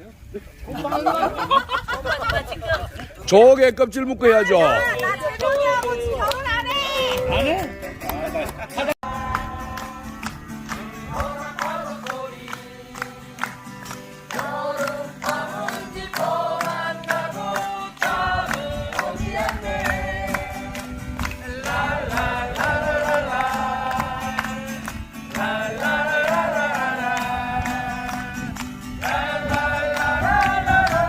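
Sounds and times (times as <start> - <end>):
strummed acoustic guitar: 7.5 - 31.0
group of voices singing: 8.8 - 31.0.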